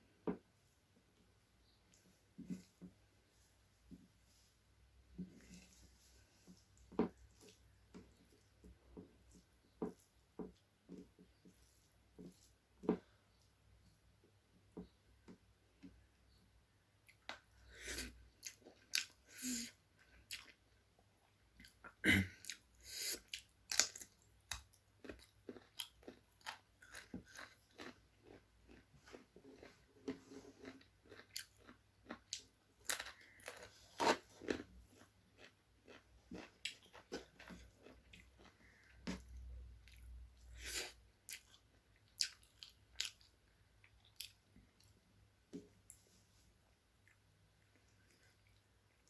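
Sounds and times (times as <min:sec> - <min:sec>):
person chewing: 0:17.0 - 0:20.6, 0:21.2 - 0:44.9.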